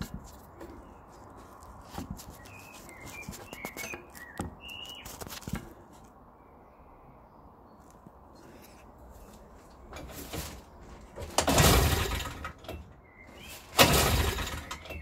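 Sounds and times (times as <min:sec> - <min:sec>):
knocks and handling noises: 0:00.0 - 0:06.2
bird chirps: 0:02.2 - 0:05.4, 0:13.0 - 0:13.8.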